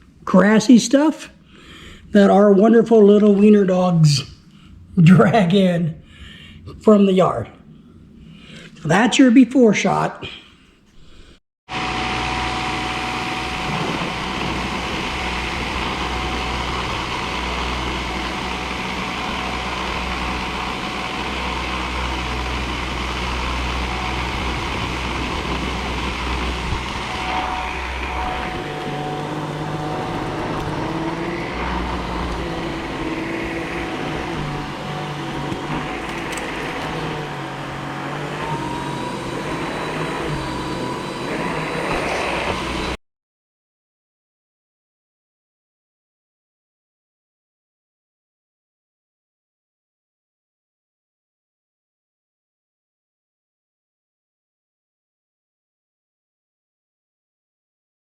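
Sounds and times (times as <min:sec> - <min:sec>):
cordless vacuum cleaner whining: 0:11.7 - 0:43.0.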